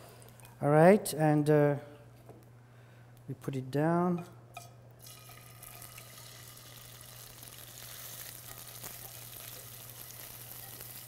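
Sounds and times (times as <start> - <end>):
fish frying hiss in pan: 5.1 - 11.0.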